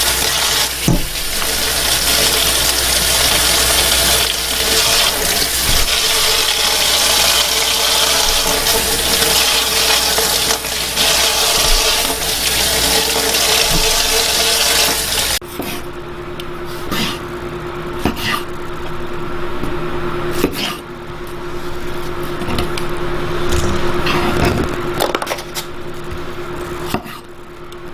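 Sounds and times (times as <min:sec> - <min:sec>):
tap water running: 0:00.0 - 0:15.4.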